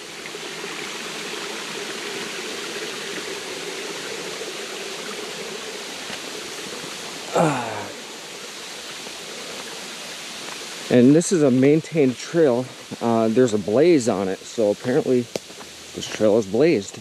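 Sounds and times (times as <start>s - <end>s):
water rushing over rocks: 0.0s - 17.0s
person's voice sliding down: 7.3s - 8.0s.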